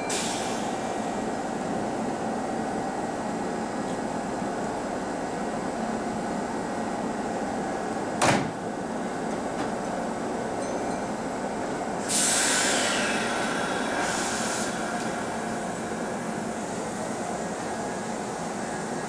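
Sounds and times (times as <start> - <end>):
electric train humming: 0.0 - 19.0
compressed air hiss: 12.0 - 16.8.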